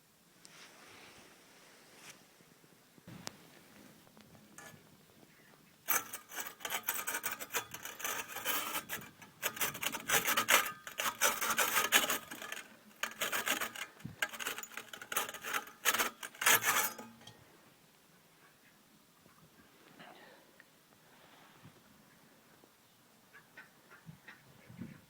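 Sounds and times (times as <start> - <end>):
catalytic converter insides rattling: 5.9 - 17.3.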